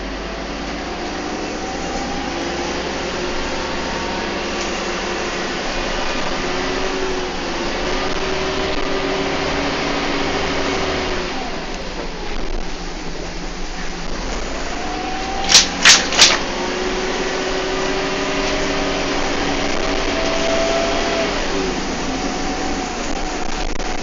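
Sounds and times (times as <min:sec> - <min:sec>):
bus engine whine: 0:00.0 - 0:24.0
loud sharp knocks: 0:15.4 - 0:16.4.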